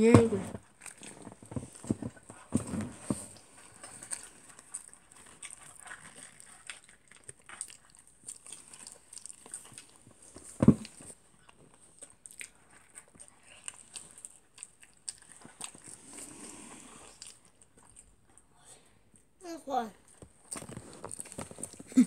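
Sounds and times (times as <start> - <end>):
small rustles and taps: 0.0 - 5.7, 9.6 - 11.7, 20.0 - 22.0
chewing and mouth clicks: 0.6 - 19.3, 20.0 - 22.0.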